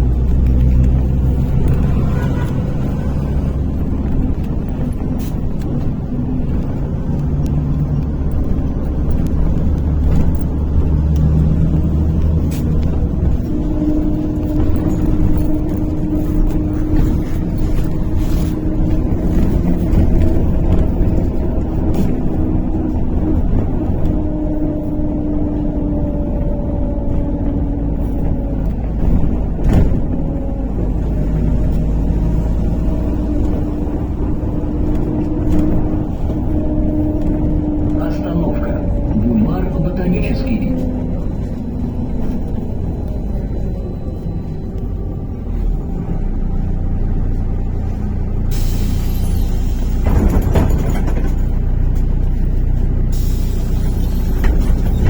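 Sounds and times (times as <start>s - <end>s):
bus engine and road rumble: 0.0s - 55.0s
steady engine tone: 0.0s - 55.0s
bus body knocks and rattles: 3.3s - 38.0s, 49.8s - 53.0s, 53.7s - 55.0s.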